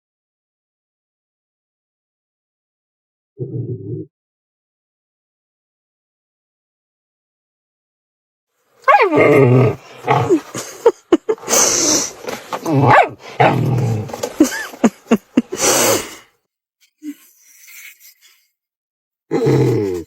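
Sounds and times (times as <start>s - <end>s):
dog growling and moaning: 3.4s - 4.1s, 8.8s - 16.1s, 19.3s - 20.0s.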